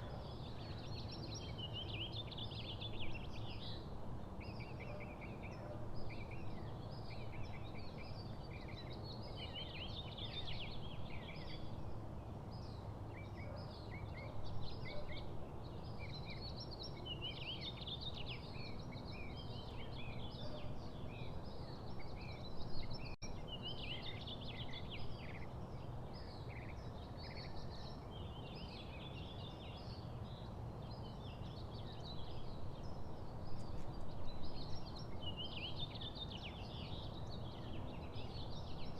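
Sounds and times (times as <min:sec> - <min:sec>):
small songbirds chirping: 0:00.0 - 0:38.9.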